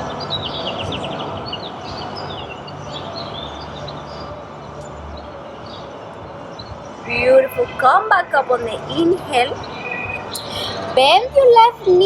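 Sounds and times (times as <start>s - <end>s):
passing vehicles rumbling: 0.0s - 12.0s
small birds chirping: 0.0s - 12.0s.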